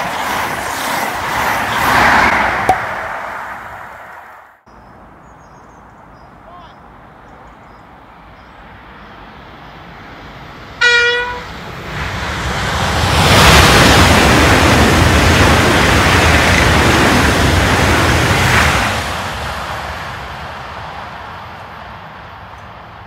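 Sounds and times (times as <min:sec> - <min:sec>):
train passing at speed: 0:00.0 - 0:06.1, 0:06.9 - 0:23.0
train horn toot: 0:10.8 - 0:11.6.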